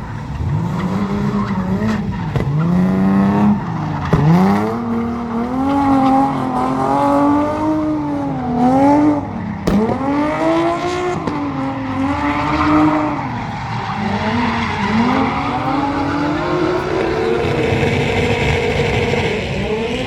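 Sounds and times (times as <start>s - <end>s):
car engine revving: 0.0s - 20.0s
tyres squealing: 9.1s - 19.3s
sharp crack: 9.6s - 10.6s.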